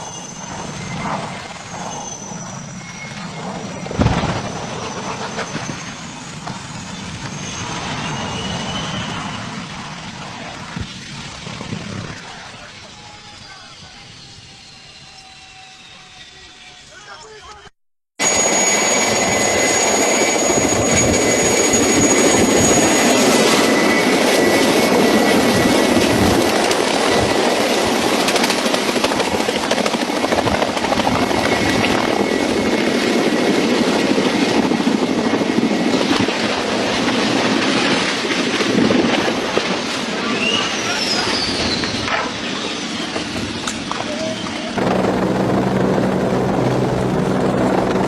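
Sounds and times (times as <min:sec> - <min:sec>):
helicopter rotor and engine: 0:00.0 - 0:16.4, 0:18.2 - 0:48.0
thin high whistles: 0:13.0 - 0:17.0, 0:40.4 - 0:43.2.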